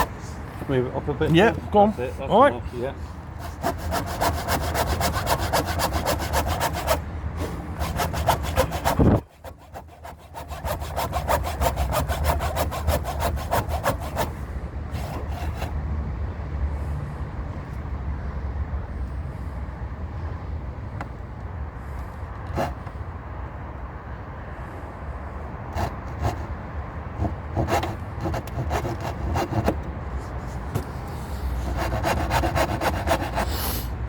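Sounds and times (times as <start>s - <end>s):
saw cutting timber: 3.4s - 15.8s, 22.5s - 22.9s, 25.7s - 26.5s, 27.2s - 29.9s, 31.6s - 33.8s.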